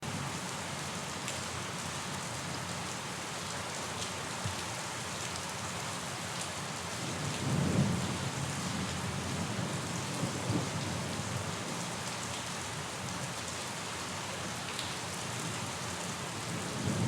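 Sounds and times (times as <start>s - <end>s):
steady rain falling: 0.0s - 17.0s
low rumble of thunder: 7.0s - 11.9s, 16.4s - 17.0s.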